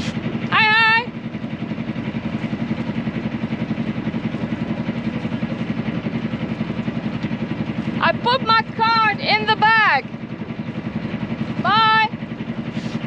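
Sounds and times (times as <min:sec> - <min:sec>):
small boat engine running: 0:00.0 - 0:13.0.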